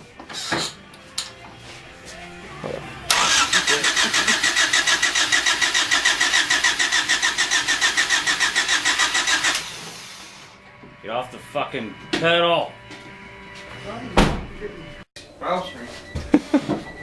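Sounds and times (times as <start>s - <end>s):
starter cranking engine: 3.1s - 10.5s.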